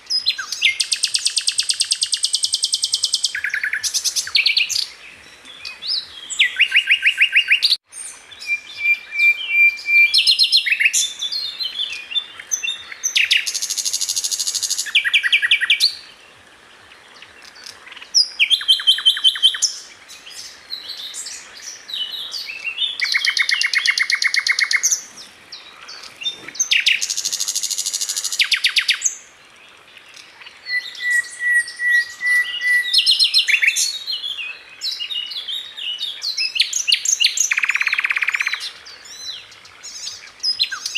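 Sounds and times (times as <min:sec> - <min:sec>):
bird singing trills and chatter: 0:17.4 - 0:29.2, 0:30.0 - 0:40.9
bird whistle notes: 0:30.7 - 0:33.7.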